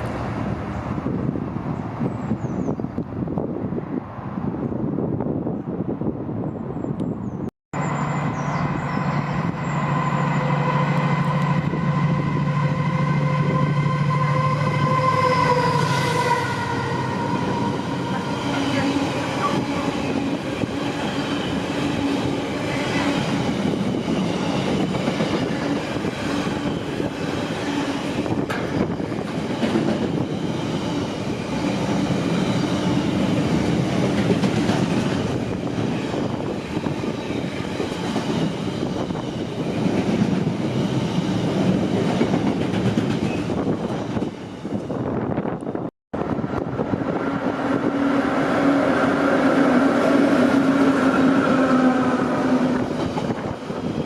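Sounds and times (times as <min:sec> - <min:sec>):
locomotive engine drone: 0:07.8 - 0:23.0
train wagons rumbling and clattering: 0:15.2 - 0:54.0.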